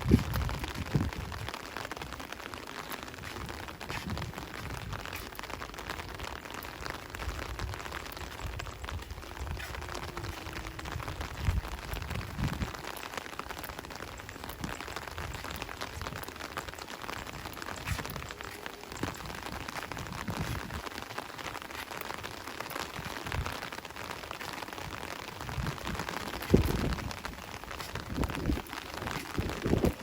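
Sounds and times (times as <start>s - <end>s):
rain patter: 0.0s - 30.0s.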